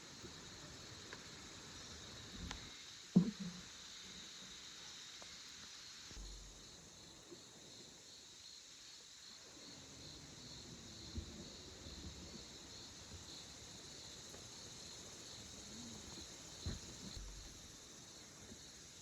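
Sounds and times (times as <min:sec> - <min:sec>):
insects chirring: 0:00.0 - 0:19.0
soft knock: 0:03.2 - 0:03.6.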